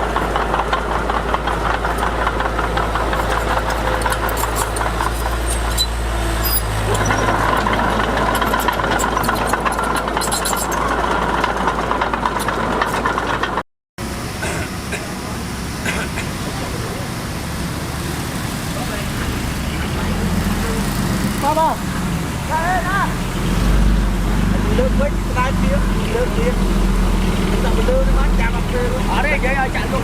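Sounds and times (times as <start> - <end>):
metallic clanking: 0.0 - 13.6
diesel machinery engine hum: 0.0 - 30.0.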